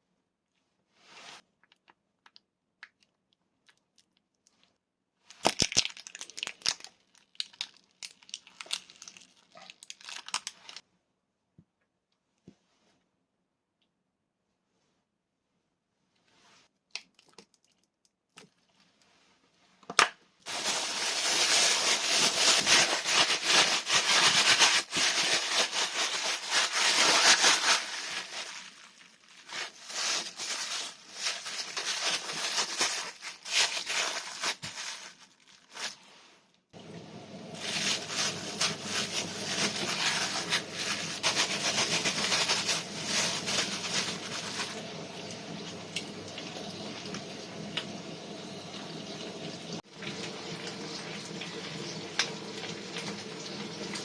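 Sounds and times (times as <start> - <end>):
plastic bag crinkling: 5.3 - 10.8, 20.4 - 36.2, 37.5 - 45.0.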